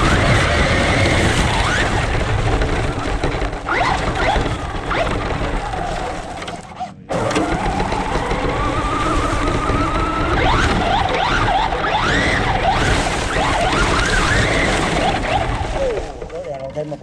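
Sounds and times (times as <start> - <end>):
toy truck motor whining: 3.6 - 16.2.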